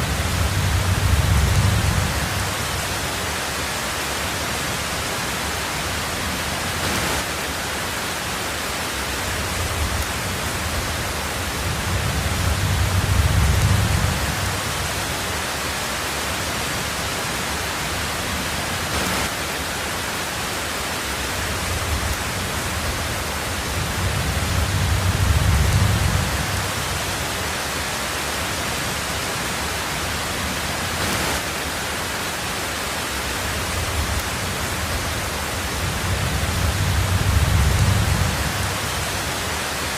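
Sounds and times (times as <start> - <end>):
thunder rolling: 0.0 - 2.7, 9.6 - 14.9, 23.6 - 26.8, 33.7 - 39.1
heavy rain on a tin roof: 0.0 - 39.9.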